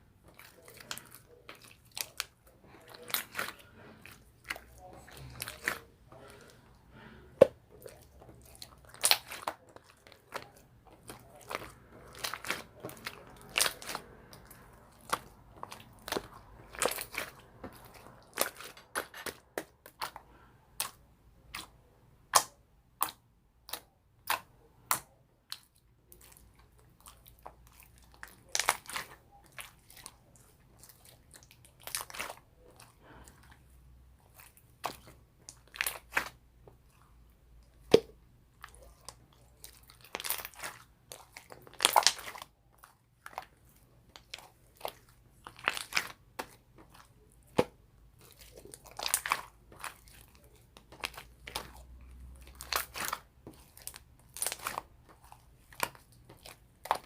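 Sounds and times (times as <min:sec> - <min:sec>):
crisp crunching and clicking: 0:37.6 - 0:57.0.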